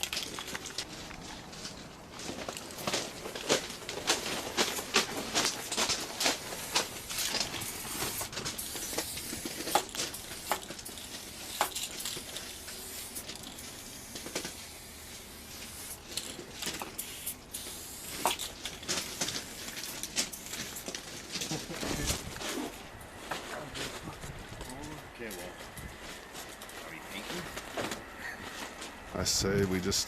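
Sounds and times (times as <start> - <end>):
spray-paint can hissing: 6.3 - 20.9.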